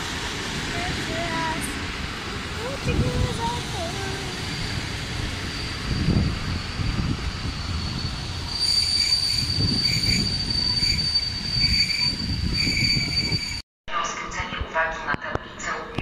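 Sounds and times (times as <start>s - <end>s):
train coaches rumbling past: 0.0s - 13.6s
high-pitched wheel squeal: 4.3s - 13.6s.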